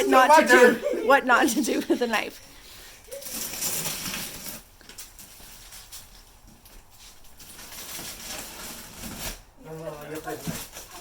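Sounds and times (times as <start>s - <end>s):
cardboard scraping and rustling: 3.2s - 6.3s, 7.0s - 11.0s.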